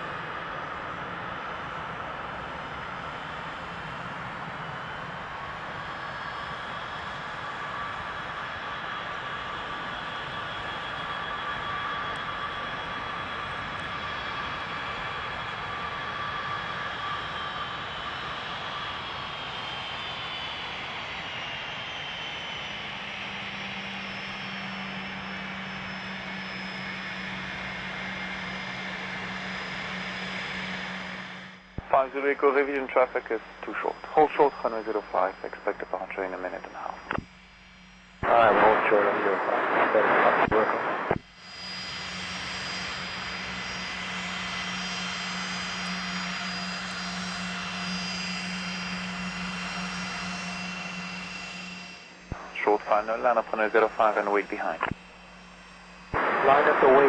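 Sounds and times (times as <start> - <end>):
jet engine whine: 0.0 - 57.0
low hum: 24.2 - 57.0.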